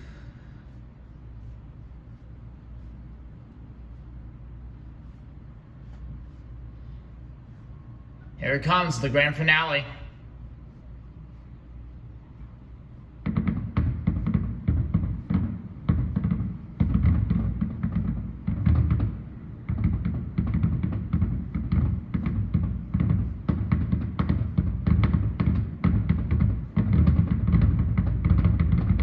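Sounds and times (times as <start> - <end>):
fireworks booms and cracks: 13.2 - 29.0.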